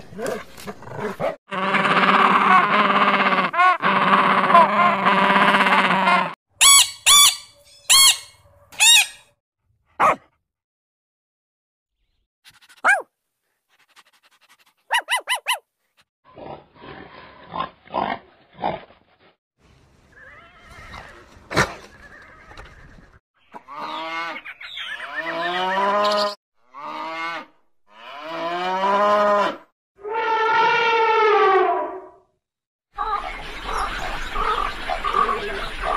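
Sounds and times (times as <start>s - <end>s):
puppy yelping: 10.0s - 10.2s, 12.8s - 13.1s, 14.9s - 15.6s
cows mooing: 26.8s - 29.6s.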